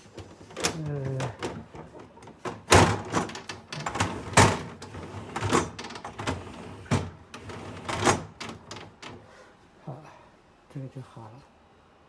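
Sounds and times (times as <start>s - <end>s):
panel knocking in freezer: 0.2s - 4.8s.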